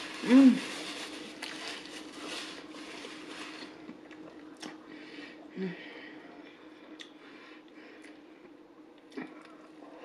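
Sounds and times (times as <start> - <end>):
person humming: 0.2 - 0.8.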